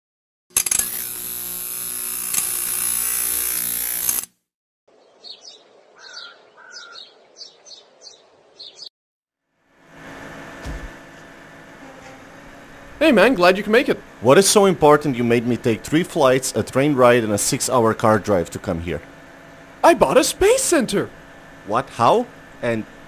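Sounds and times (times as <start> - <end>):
low thump: 10.6 - 11.0.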